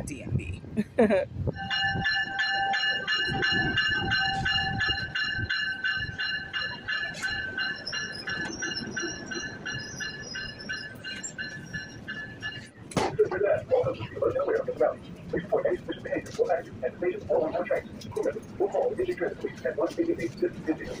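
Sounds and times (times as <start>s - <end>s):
train brakes squealing: 6.0s - 12.7s.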